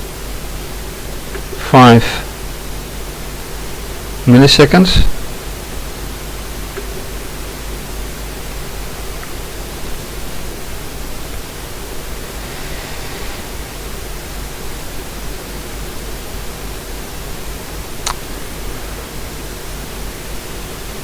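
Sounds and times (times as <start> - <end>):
steady hiss: 0.0 - 21.0
low hum: 11.9 - 15.6.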